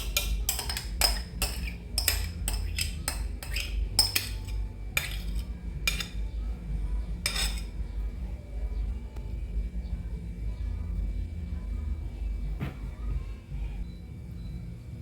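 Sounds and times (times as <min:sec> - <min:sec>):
cutlery clinking against bowl: 0:00.0 - 0:06.2, 0:07.2 - 0:07.8.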